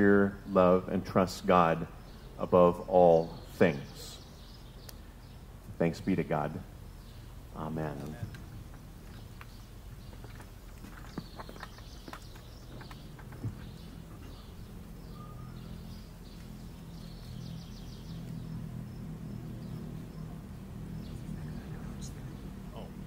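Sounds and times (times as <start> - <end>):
birds chirping and trilling: 0.0 - 23.0
steady low hum: 0.0 - 23.0.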